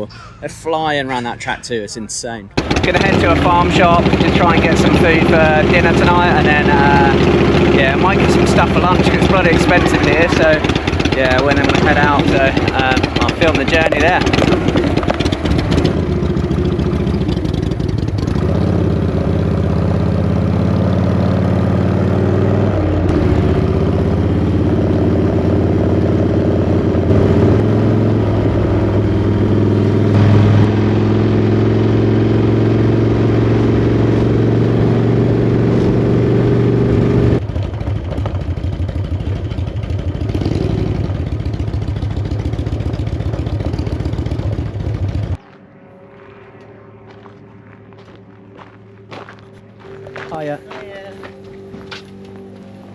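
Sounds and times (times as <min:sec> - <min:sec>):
motorcycle engine running: 0:02.5 - 0:45.4.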